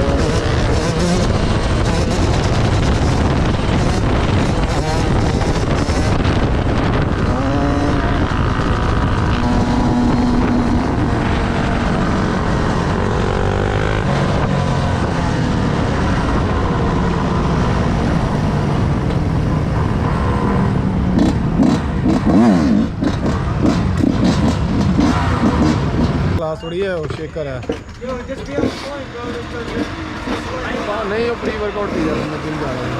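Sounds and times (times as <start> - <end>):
motorcycle engines revving: 0.0 - 32.9
wind and road noise: 0.0 - 32.9.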